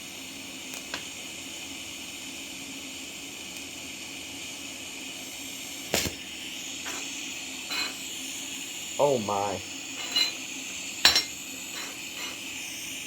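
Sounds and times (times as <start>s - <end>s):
welding hiss: 0.0s - 13.0s
sharp metallic clank: 6.9s - 7.1s, 7.7s - 8.0s, 10.0s - 12.4s.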